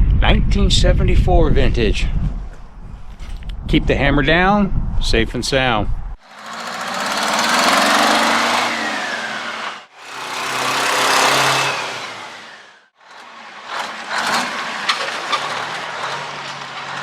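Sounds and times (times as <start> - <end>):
two-stroke diesel engine revving: 6.2 - 17.0.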